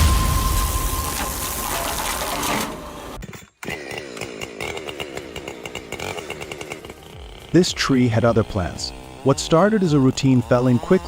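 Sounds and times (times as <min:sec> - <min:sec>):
loud rushing noise: 0:00.0 - 0:03.2
chainsaw revving: 0:03.6 - 0:11.0.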